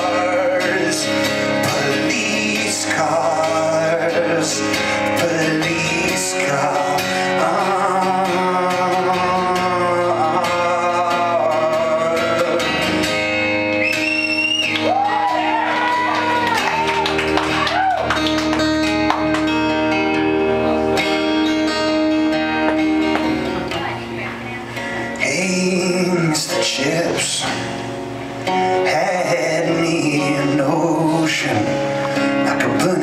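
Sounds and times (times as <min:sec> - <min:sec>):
rock band playing: 0:00.0 - 0:33.0
wordless sung wails: 0:13.6 - 0:18.2.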